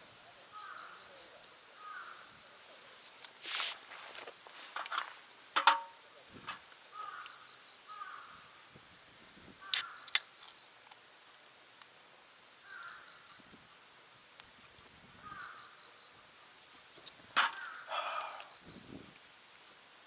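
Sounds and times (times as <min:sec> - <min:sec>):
harsh bird calls: 0:00.5 - 0:02.4, 0:06.9 - 0:08.5, 0:09.6 - 0:10.2, 0:12.6 - 0:13.3, 0:15.2 - 0:16.0, 0:17.4 - 0:18.9.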